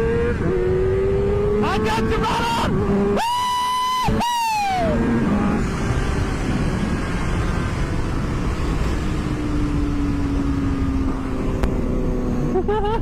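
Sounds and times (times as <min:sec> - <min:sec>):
low engine drone: 0:02.7 - 0:13.0
wind noise rushing: 0:04.1 - 0:12.4.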